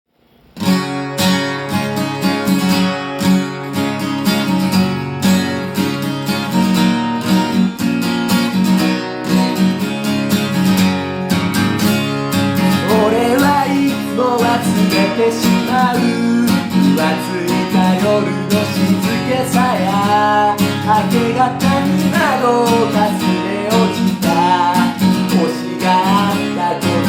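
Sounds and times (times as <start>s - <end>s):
acoustic guitar strumming: 0.1s - 27.0s
person singing: 12.7s - 27.0s.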